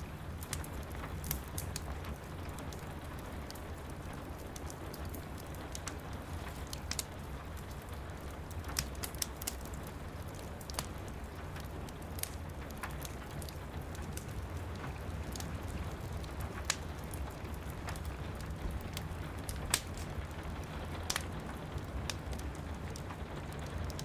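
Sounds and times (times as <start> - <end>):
rain pattering: 0.0 - 24.0
wood fire crackling: 0.0 - 24.0.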